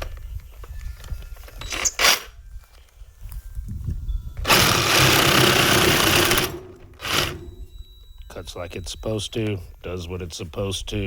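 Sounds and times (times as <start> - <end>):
reciprocating saw cutting: 4.4 - 7.5.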